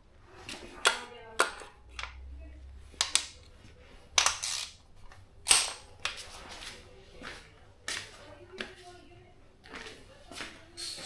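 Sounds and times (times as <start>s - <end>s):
metallic clinks and knocks: 5.4s - 6.2s.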